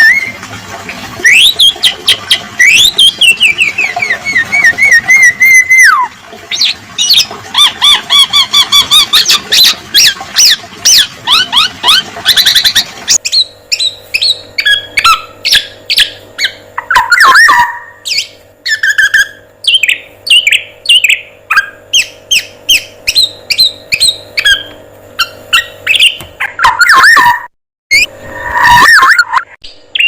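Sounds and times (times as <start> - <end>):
songbird trills and chirps: 13.2 - 27.2.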